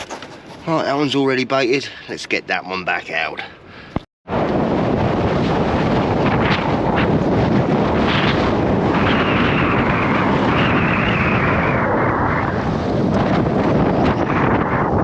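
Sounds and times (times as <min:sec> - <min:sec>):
wind buffeting microphone: 0:03.8 - 0:15.0.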